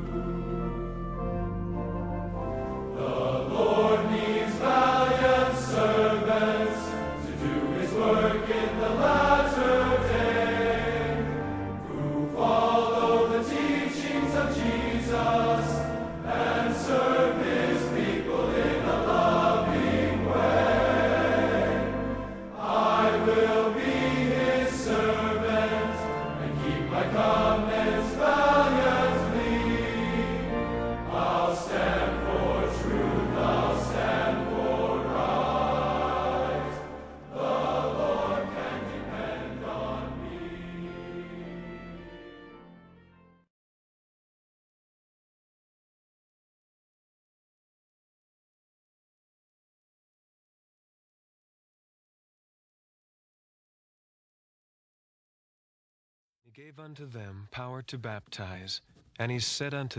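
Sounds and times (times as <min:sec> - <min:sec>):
choir singing a hymn: 0:00.0 - 0:43.0
instrumental accompaniment: 0:00.0 - 0:43.4.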